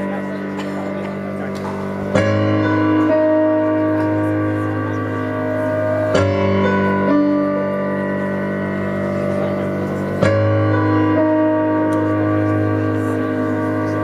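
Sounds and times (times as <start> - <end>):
keyboard playing held chords: 0.0 - 14.0.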